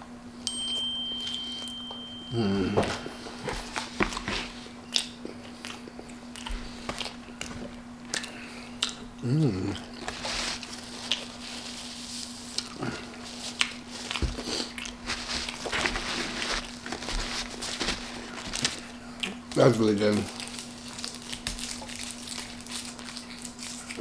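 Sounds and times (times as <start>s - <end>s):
low hum: 0.0s - 6.3s
chewing and crunching food: 3.4s - 24.0s.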